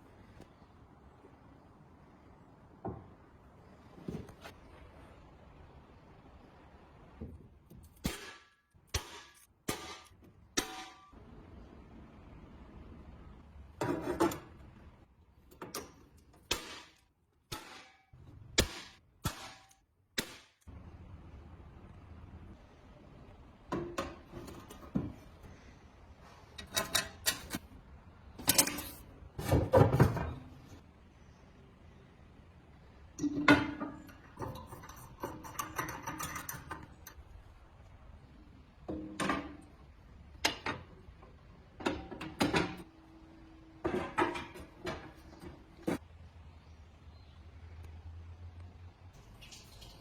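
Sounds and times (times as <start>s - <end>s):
metal parts knocking and clattering: 26.6s - 27.7s, 28.4s - 30.5s, 33.2s - 37.3s.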